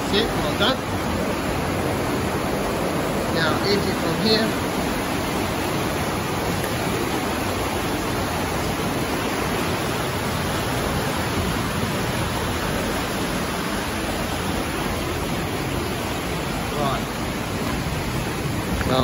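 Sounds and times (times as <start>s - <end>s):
river rushing through tunnel: 0.0s - 19.0s.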